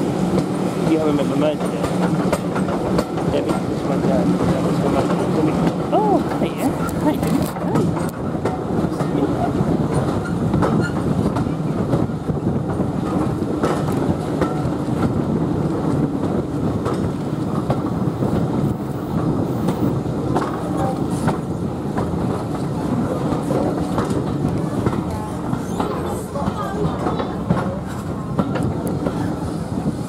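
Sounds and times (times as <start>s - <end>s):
train wheels rumbling on rail: 0.0s - 30.0s
wheels clattering over rail joints: 0.3s - 18.5s.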